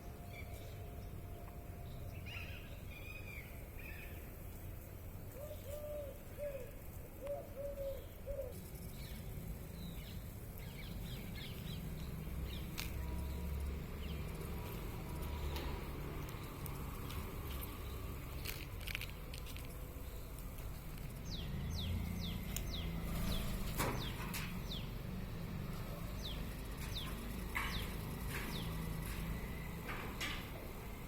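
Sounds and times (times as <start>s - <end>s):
birds chirping: 5.2s - 29.8s.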